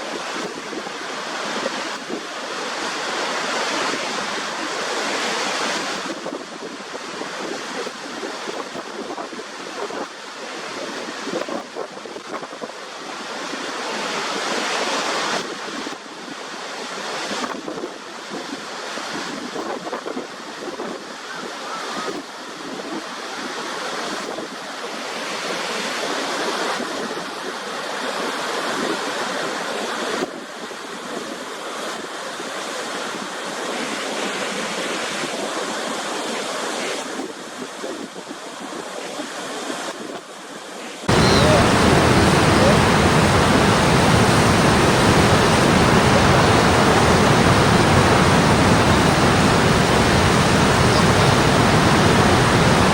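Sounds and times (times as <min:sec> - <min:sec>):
waterfall rushing: 0:41.0 - 0:52.9.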